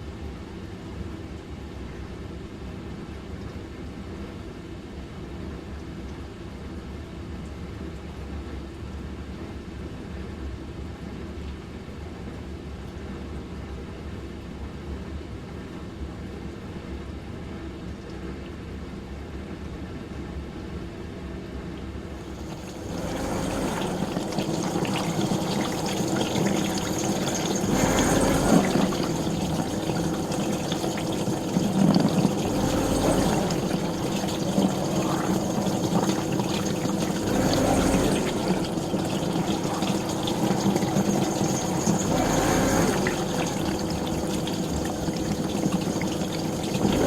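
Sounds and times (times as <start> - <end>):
dishwasher hum: 22.1 - 47.0
water spraying inside dishwasher: 22.2 - 47.0.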